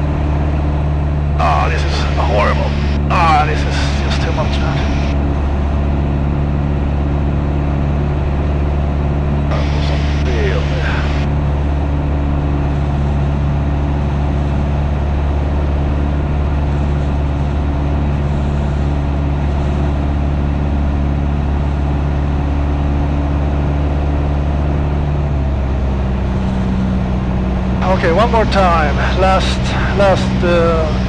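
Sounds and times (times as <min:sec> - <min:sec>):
aircraft piston engine droning: 0:00.0 - 0:31.0.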